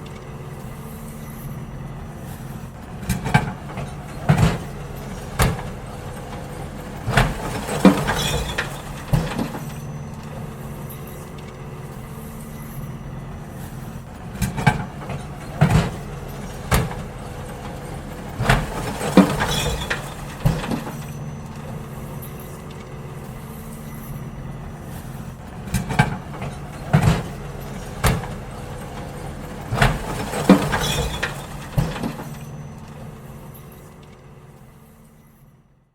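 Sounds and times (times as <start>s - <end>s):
garbage truck idling: 0.0s - 35.9s
bins banging and clattering: 2.4s - 12.5s, 13.4s - 34.1s.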